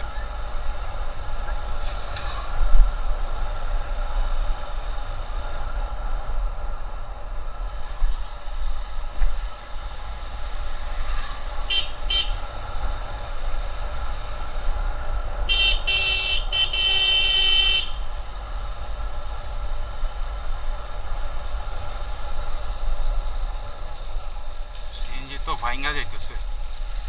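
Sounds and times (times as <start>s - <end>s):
wind and road noise: 0.0s - 27.0s
vehicle horn honking: 11.7s - 12.4s, 15.5s - 18.0s.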